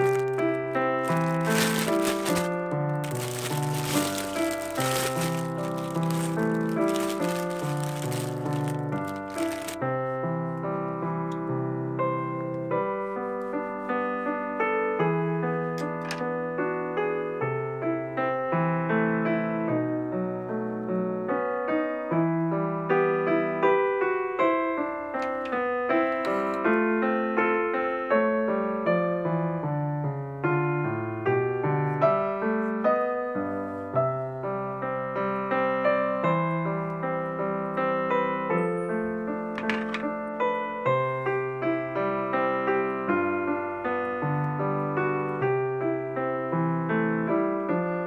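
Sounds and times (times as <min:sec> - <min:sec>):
gentle piano music: 0:00.0 - 0:48.0.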